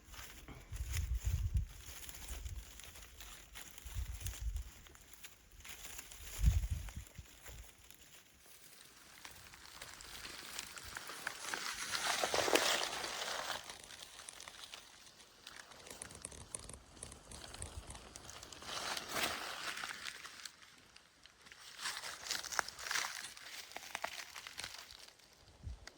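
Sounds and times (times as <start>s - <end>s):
rustling through dry leaves: 0.0s - 25.9s.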